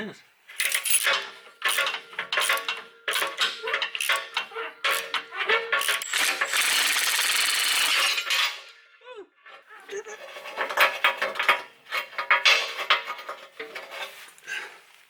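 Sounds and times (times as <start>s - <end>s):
steady rasping: 0.5s - 6.7s
tools clinking on metal: 0.5s - 6.7s, 10.4s - 14.0s.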